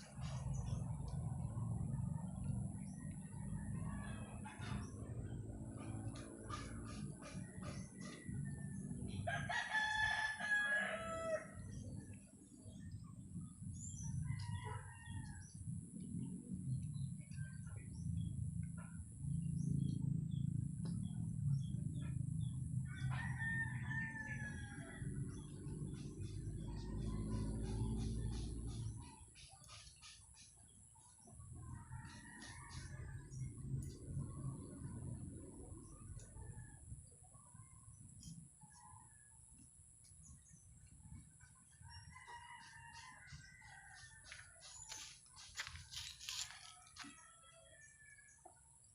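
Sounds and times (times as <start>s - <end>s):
low steady rumble: 0.0s - 48.9s
faint rooster crowing: 7.6s - 12.0s, 13.8s - 16.3s, 22.8s - 30.2s, 31.7s - 35.1s, 41.4s - 48.9s
rooster crowing: 9.2s - 11.6s, 22.9s - 25.3s, 41.9s - 44.6s, 46.3s - 48.5s.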